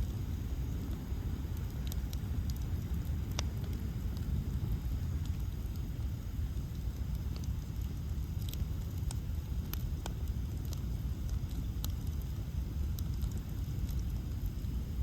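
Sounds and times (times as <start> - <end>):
bonfire crackling and popping: 0.0 - 15.0.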